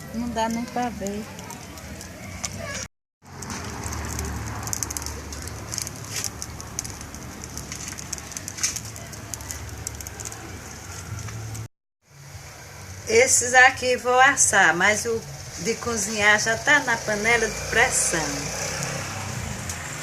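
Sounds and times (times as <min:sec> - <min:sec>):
bonfire crackling and popping: 0:00.1 - 0:11.7
low fire rumble: 0:00.1 - 0:11.7.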